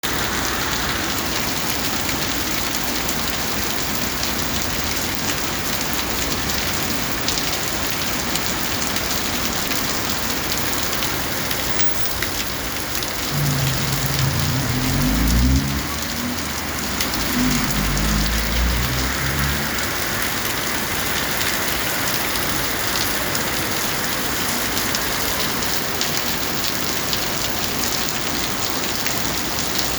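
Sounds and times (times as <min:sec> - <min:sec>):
steady rain falling: 0:00.0 - 0:29.9
low rumble with pitched hum: 0:13.3 - 0:19.1.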